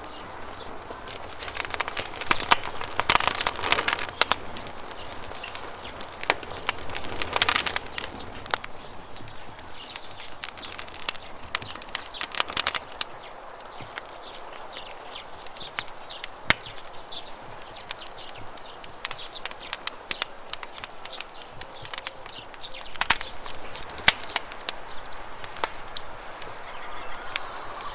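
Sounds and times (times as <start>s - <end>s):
campfire crackling and popping: 0.0s - 27.9s.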